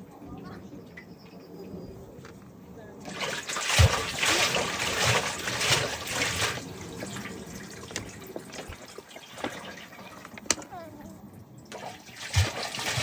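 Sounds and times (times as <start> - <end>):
water running and splashing: 3.0 - 13.0
small clicks and drips: 5.6 - 13.0.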